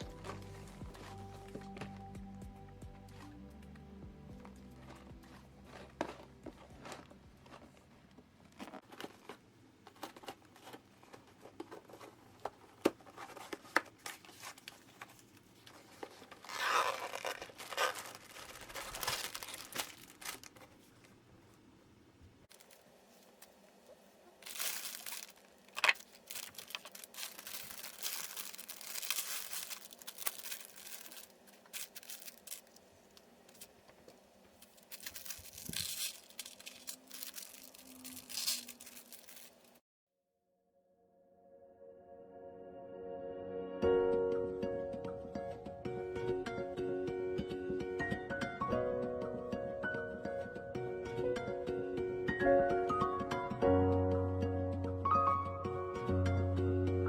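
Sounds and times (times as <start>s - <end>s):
packaging tearing and crinkling: 16.0s - 20.8s, 22.5s - 22.8s, 24.4s - 32.8s, 33.5s - 33.7s, 34.6s - 39.8s
plastic parts clicking: 24.4s - 33.7s, 34.6s - 39.8s.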